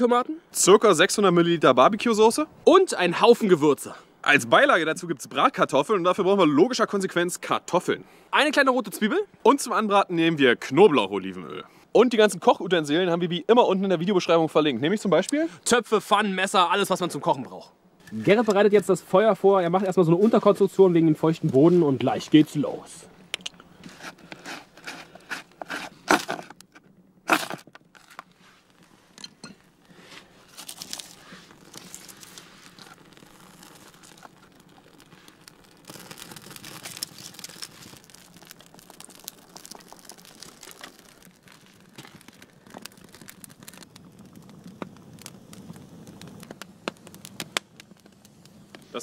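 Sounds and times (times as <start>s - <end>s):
small fire crackling: 0.0s - 49.0s
knife scraping bark: 23.8s - 26.6s, 27.3s - 28.2s.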